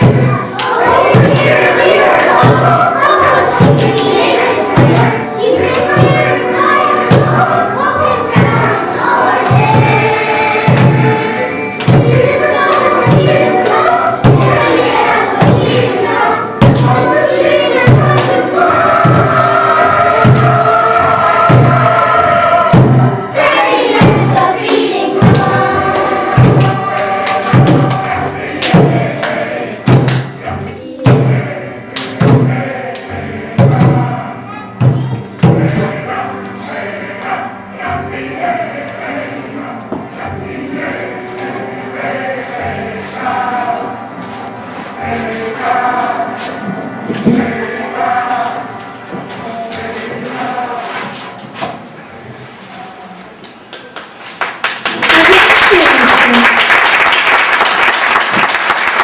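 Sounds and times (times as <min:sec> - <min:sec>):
steady drum beat: 0:00.0 - 0:07.7, 0:08.3 - 0:30.4, 0:33.5 - 0:34.2
children singing: 0:00.0 - 0:53.4.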